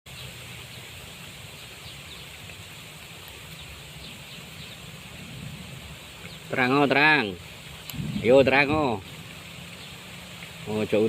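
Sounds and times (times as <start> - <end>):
low rumble: 7.9 - 9.2.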